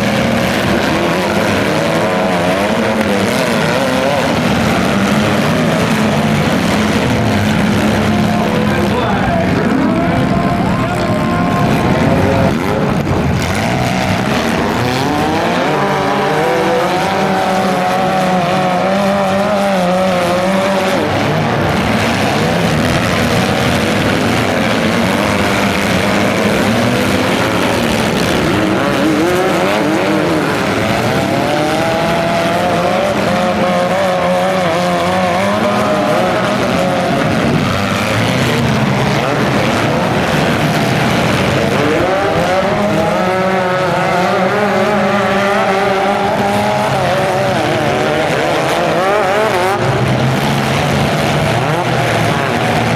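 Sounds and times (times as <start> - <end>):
car engines revving: 0.0 - 52.9.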